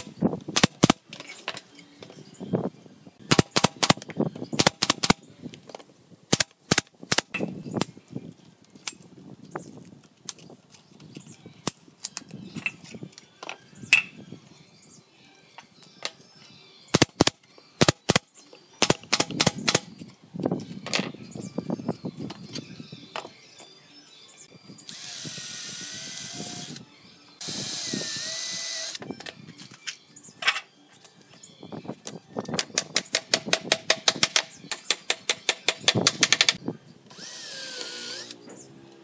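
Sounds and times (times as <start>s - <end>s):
nail gun firing into wood: 3.3s - 4.0s, 4.6s - 5.2s, 16.9s - 18.2s, 18.8s - 19.9s.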